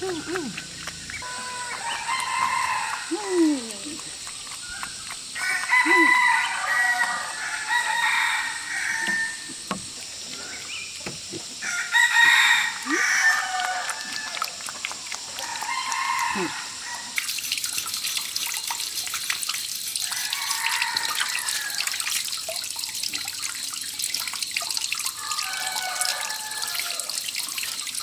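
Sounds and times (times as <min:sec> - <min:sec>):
farm animals calling: 0:00.0 - 0:09.4
roosters crowing: 0:01.0 - 0:03.7, 0:05.4 - 0:09.6, 0:11.6 - 0:14.6, 0:15.3 - 0:17.2, 0:20.1 - 0:22.0, 0:25.2 - 0:27.2.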